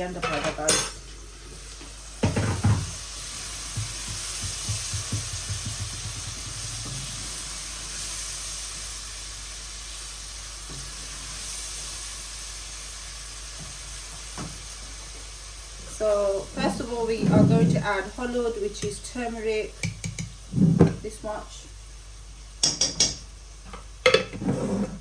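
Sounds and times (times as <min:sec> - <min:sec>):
food sizzling in oil: 0:00.0 - 0:24.6
utensil knocking and scraping pot: 0:02.2 - 0:07.5, 0:16.6 - 0:18.0, 0:19.8 - 0:21.0.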